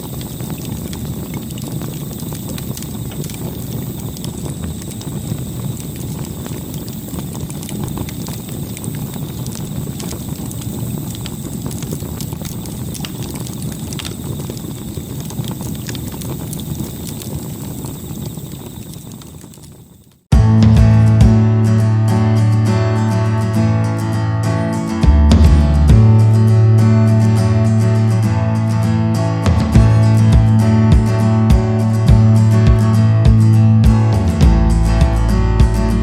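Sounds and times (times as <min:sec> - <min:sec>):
wood crackling and popping: 0:00.0 - 0:20.8, 0:28.6 - 0:36.0
campfire rumble: 0:00.0 - 0:21.5, 0:24.7 - 0:36.0.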